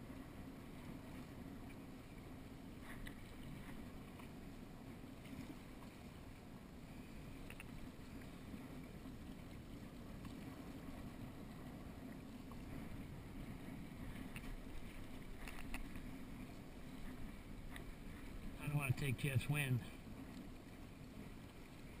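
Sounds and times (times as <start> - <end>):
wind and water rushing: 0.0 - 22.0
light clicks: 7.4 - 7.8, 15.4 - 16.0.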